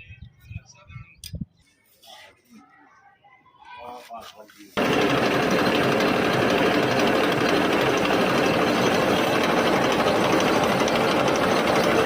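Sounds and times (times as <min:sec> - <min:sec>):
tractor engine clattering: 0:04.8 - 0:12.0.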